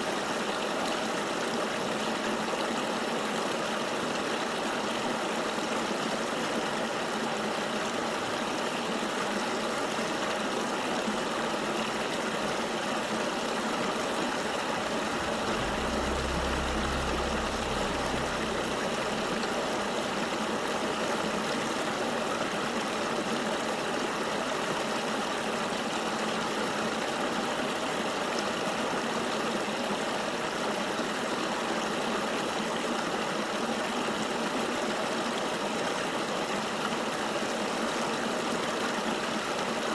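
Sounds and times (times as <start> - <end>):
low rumble: 14.8 - 20.9.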